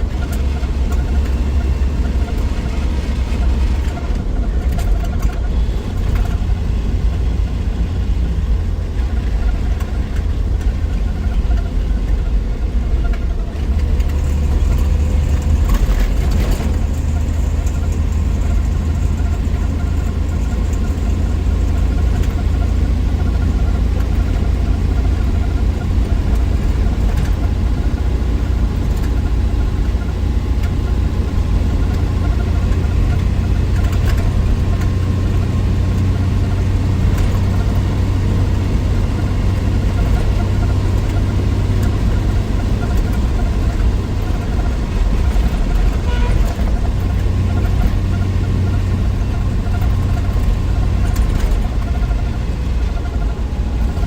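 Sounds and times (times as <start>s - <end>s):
car engine drone: 0.0s - 54.0s
road noise: 0.0s - 54.0s.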